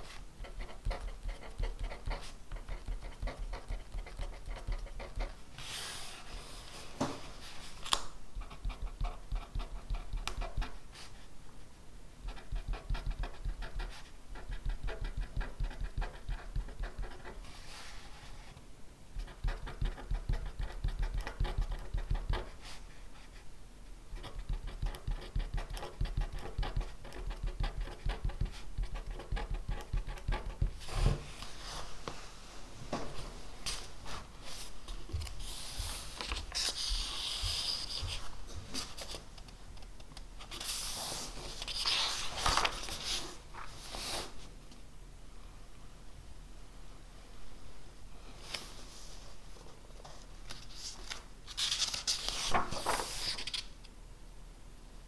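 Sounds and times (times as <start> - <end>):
pen writing on paper: 0.4 - 5.3.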